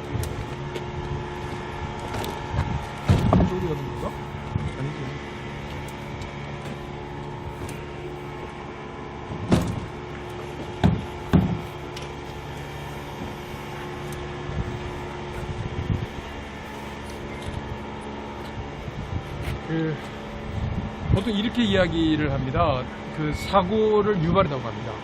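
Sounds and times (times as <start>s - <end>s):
motor hum with fixed tones: 0.0s - 25.0s
sharp knocks: 10.8s - 11.7s.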